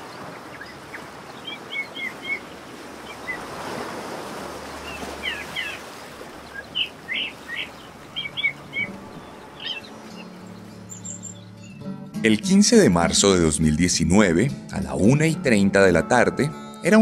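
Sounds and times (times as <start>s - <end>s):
small birds chirping: 0.0s - 3.5s, 4.5s - 11.9s.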